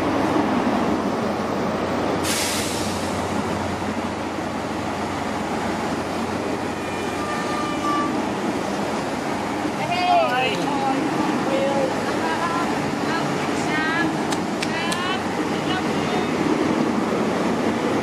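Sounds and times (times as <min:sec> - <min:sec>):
train wheels rumbling on rails: 0:00.0 - 0:18.0
short hiss: 0:02.2 - 0:03.2
faint high squeal: 0:06.7 - 0:08.2.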